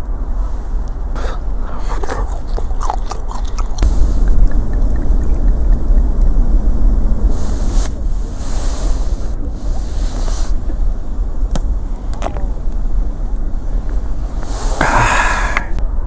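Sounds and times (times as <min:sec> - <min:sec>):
crunchy chewing: 0:00.9 - 0:06.4, 0:07.3 - 0:15.7
wind rumble on microphone: 0:03.8 - 0:16.0.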